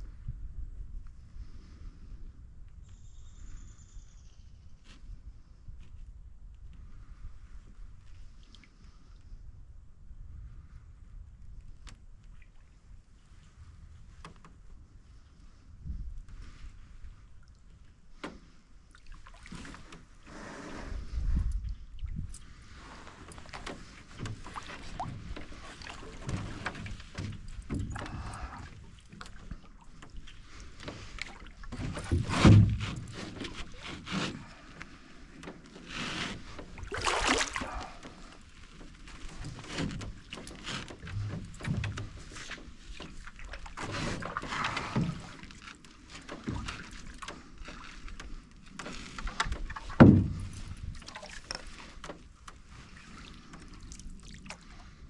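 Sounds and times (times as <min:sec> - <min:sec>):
paddle strokes swishing in water: 0:16.3 - 0:55.0
sharp thumps on canoe hull: 0:30.8 - 0:34.5, 0:49.2 - 0:52.6.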